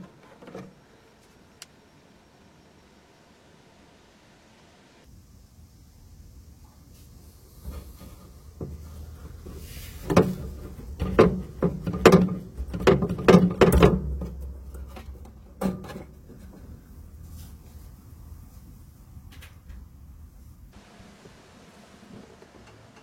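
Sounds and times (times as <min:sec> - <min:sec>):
faint low hum: 0:00.0 - 0:11.0
knocks and thumps: 0:10.0 - 0:16.6.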